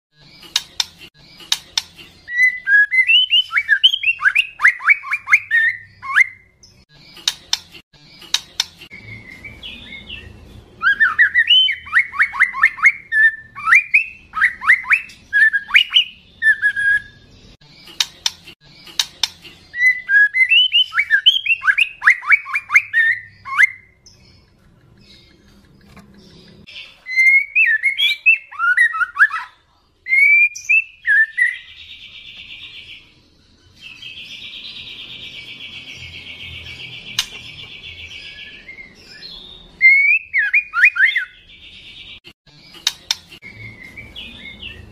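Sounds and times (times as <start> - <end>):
sharp bird clicks: 0.4 - 2.0, 7.2 - 8.9, 17.9 - 19.4, 37.0 - 37.7, 42.7 - 43.4
bird singing whistled phrases: 2.3 - 6.5, 9.0 - 17.2, 19.8 - 24.0, 27.1 - 29.5, 30.1 - 31.7, 38.2 - 41.4.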